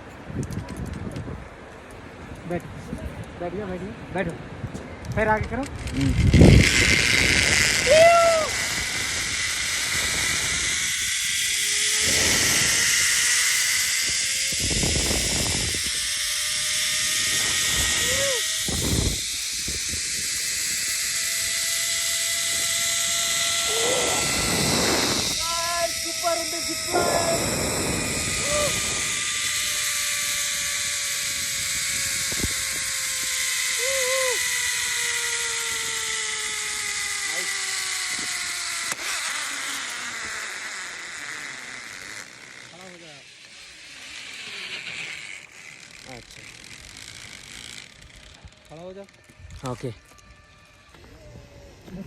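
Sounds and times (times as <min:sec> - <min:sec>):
wind on microphone: 0:00.0 - 0:40.8
zipline pulleys hissing on cable: 0:05.2 - 0:52.0.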